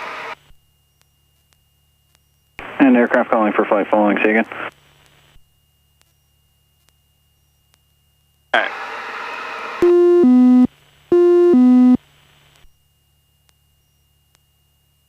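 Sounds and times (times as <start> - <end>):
person speaking on intercom: 2.7 - 4.7
electronic two-tone alert: 9.8 - 12.0.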